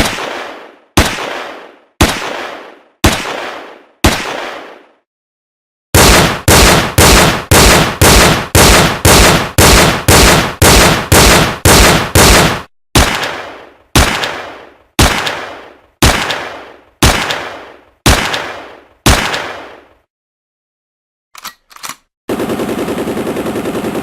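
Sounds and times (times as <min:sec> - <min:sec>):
gunshots with echoing tail: 0:00.0 - 0:05.0, 0:06.0 - 0:20.1.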